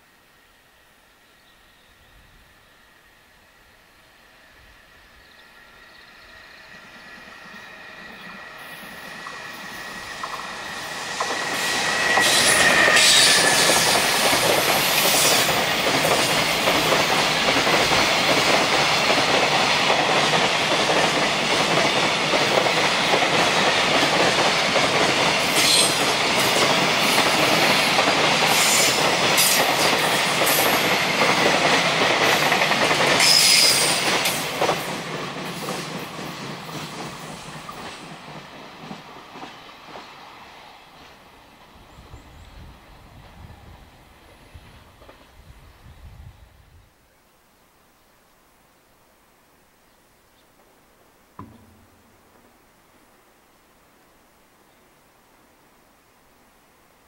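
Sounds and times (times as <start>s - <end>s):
locomotive high tone: 1.8s - 15.4s
freight train rumbling past: 1.8s - 46.4s.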